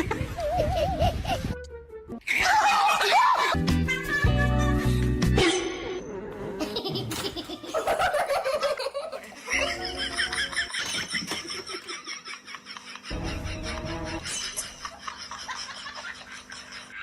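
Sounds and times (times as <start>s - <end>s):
person laughing: 0.0s - 1.6s, 6.6s - 17.0s
background music: 1.0s - 6.8s, 13.1s - 14.8s.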